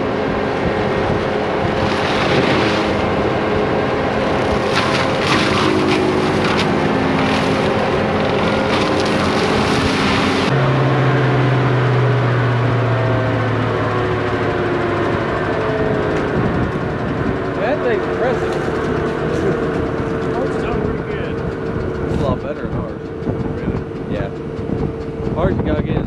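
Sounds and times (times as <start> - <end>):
heavy engine droning: 0.0 - 26.0
mulcher chewing through trees: 1.7 - 10.6
sharp crackles: 4.1 - 10.5.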